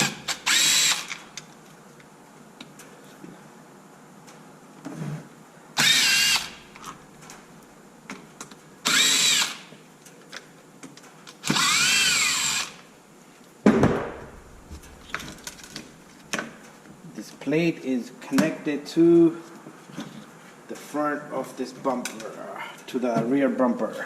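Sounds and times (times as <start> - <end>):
cordless drill motor whine: 0.0 - 1.2, 5.8 - 6.7, 8.8 - 9.7, 11.4 - 12.8.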